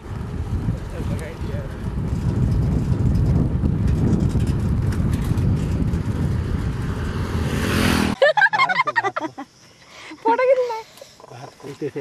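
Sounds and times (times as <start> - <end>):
wind buffeting on microphone: 0.0 - 8.2.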